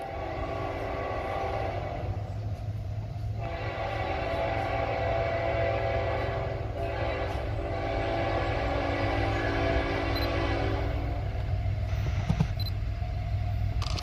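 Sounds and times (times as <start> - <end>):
locomotive air horn blasts: 0.0 - 12.3
passing train rumble: 0.0 - 14.0.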